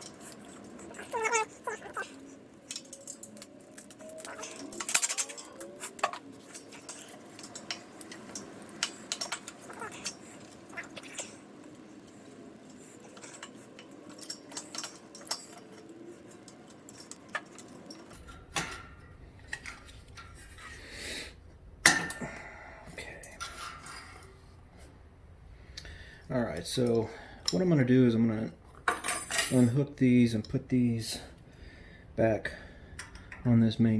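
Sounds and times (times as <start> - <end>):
small metallic clicks and clinks: 0.0 - 20.3, 28.9 - 29.8, 32.9 - 33.5.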